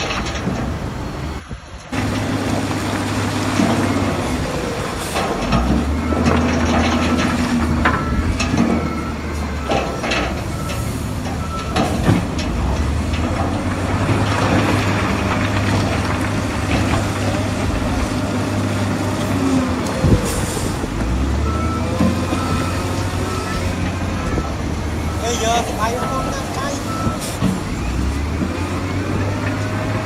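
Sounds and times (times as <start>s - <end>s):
clanks and knocks of rock and steel: 0.0s - 1.0s, 5.1s - 18.2s
diesel engine running: 0.0s - 30.0s.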